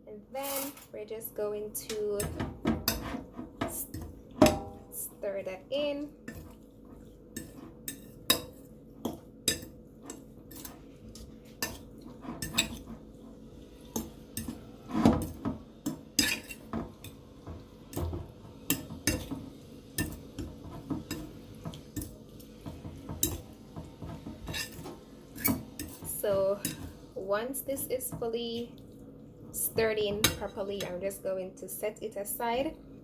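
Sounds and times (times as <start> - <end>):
utensil clinking against a bowl: 13.9 - 26.9.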